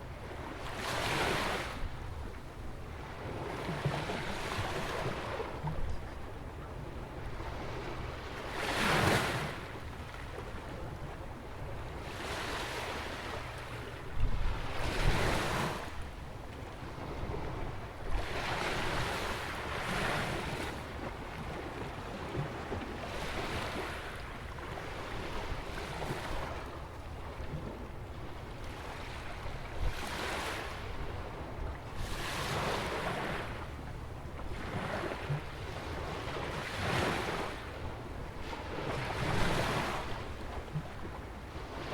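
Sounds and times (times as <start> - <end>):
wind rumbling on microphone: 14.1 - 15.9.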